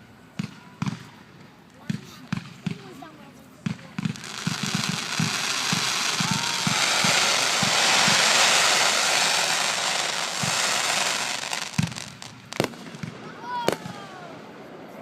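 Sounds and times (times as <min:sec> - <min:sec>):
fireworks crackling hiss: 0:00.9 - 0:15.0.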